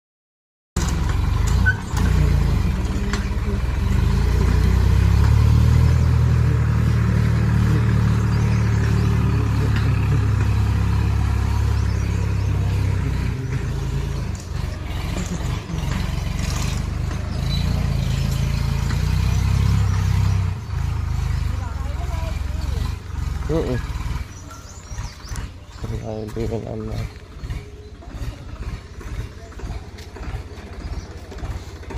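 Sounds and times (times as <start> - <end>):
tractor engine droning: 0.8 - 31.9.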